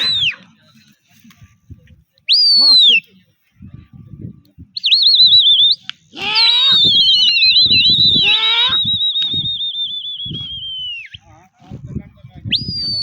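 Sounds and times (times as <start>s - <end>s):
shrill warbling whistling: 6.6s - 11.2s.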